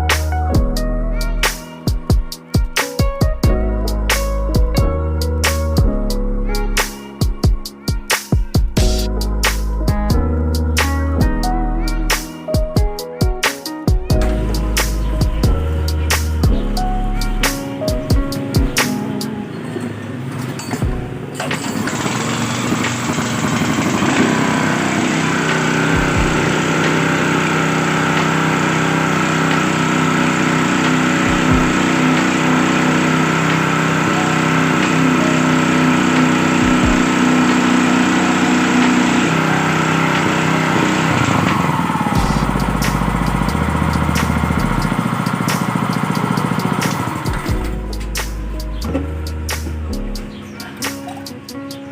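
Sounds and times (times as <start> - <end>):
small gasoline engine running: 20.6 - 47.9.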